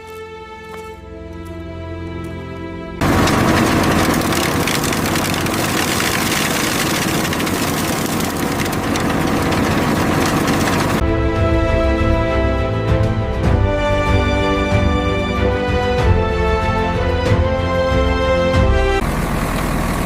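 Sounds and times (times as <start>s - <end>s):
heavy engine running: 3.0s - 11.0s, 18.6s - 20.0s
mechanical clatter: 3.0s - 11.0s.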